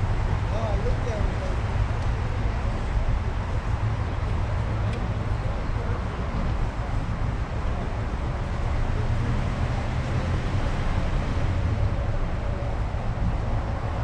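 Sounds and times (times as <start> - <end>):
car engine rumble: 0.0 - 14.0
road and wind noise: 0.0 - 14.0.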